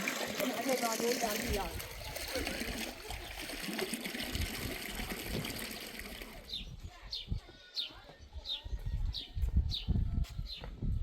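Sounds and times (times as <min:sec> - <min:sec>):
water running and trickling: 0:00.0 - 0:06.6.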